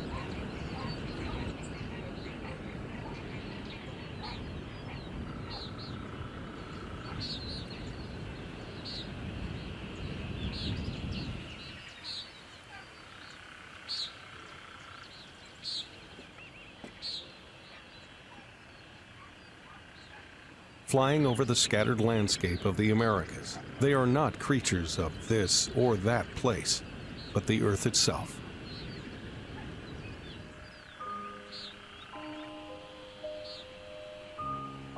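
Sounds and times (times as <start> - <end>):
high bird trill: 0.0 - 9.2, 17.0 - 34.9
small birds chirping: 0.0 - 34.9.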